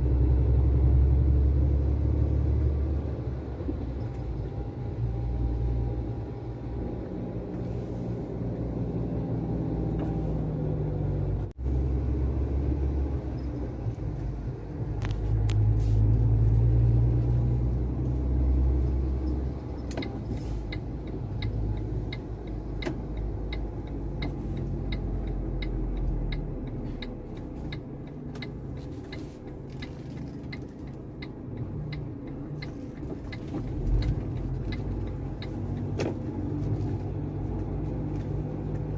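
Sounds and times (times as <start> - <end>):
truck engine rumbling: 0.0 - 38.9
regular ticking: 19.8 - 36.0.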